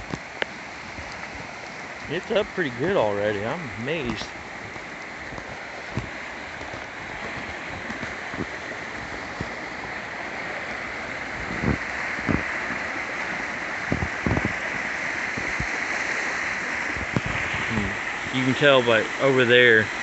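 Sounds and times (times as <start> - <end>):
rain and running water: 0.0 - 20.0.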